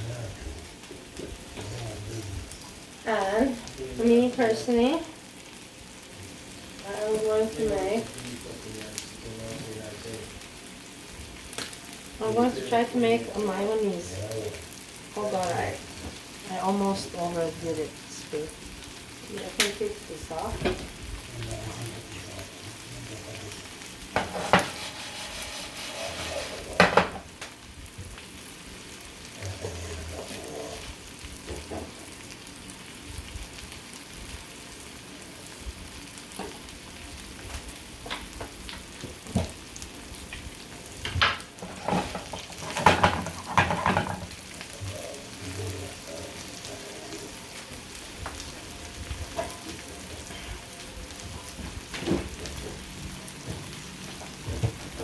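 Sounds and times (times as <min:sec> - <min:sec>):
food sizzling in hot oil: 0:00.0 - 0:55.0
utensil knocking against pan: 0:24.2 - 0:25.8, 0:26.8 - 0:27.2.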